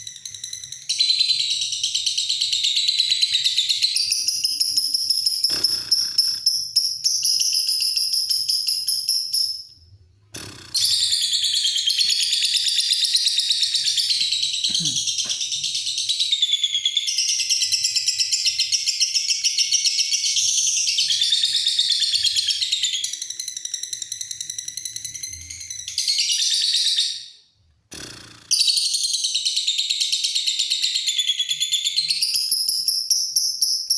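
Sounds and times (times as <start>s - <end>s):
lovebird chattering trill: 5.3s - 6.7s, 10.4s - 12.4s.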